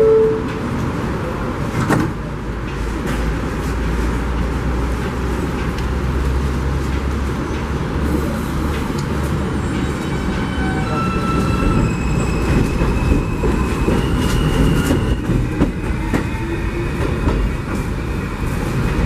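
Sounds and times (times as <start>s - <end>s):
subway train rumbling: 0.0s - 19.0s.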